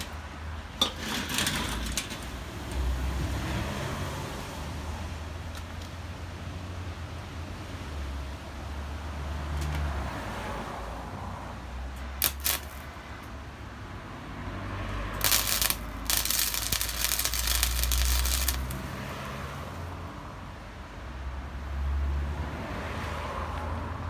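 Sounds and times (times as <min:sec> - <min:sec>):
welder arc crackling: 0:12.2 - 0:12.9, 0:15.2 - 0:20.0.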